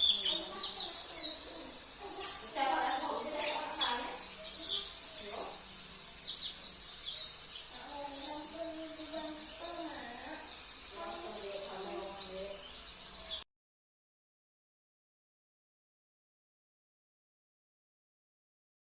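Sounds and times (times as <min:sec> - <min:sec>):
low wavering bird calls: 0:00.0 - 0:13.4
songbirds chirping: 0:00.0 - 0:13.4.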